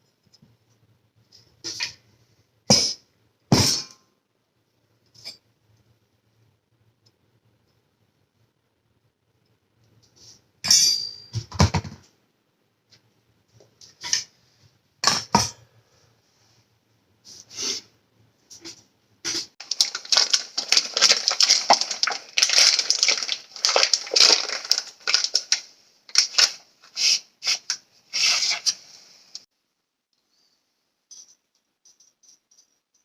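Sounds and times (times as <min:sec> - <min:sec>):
steel pieces clinking: 0:10.6 - 0:11.4, 0:31.1 - 0:33.0.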